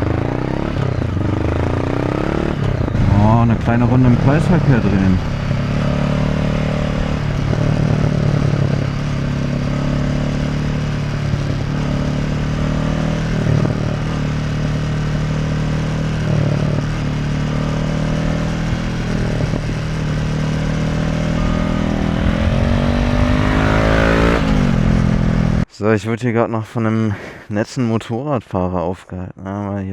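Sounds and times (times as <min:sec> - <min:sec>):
motorcycle engine running: 0:00.0 - 0:25.6.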